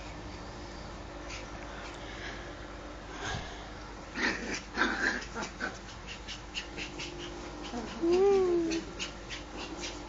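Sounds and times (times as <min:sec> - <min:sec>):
dog panting: 0:04.6 - 0:10.0
dog whining faintly: 0:05.7 - 0:10.0.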